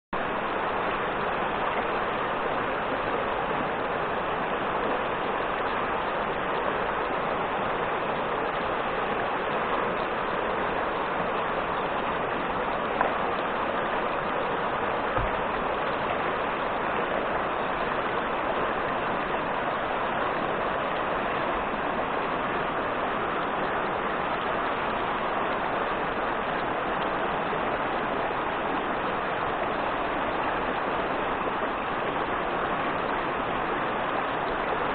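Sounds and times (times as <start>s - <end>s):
fast-flowing river water: 0.2s - 34.9s
faint knocks: 15.2s - 15.4s.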